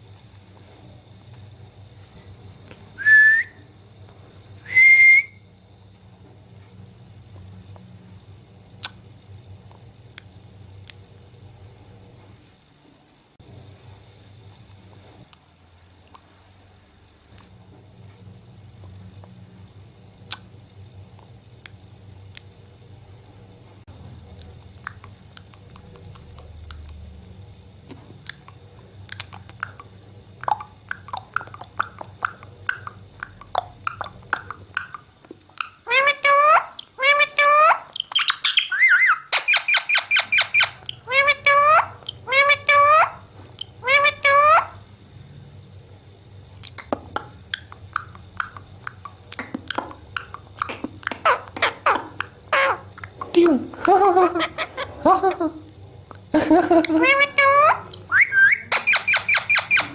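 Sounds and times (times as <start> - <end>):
low steady hum: 0.0 - 59.9
parrot squeaky chirps: 35.6 - 44.8, 51.2 - 52.8, 56.9 - 59.9
parrot clicks and chirps: 37.9 - 42.2, 57.9 - 59.9.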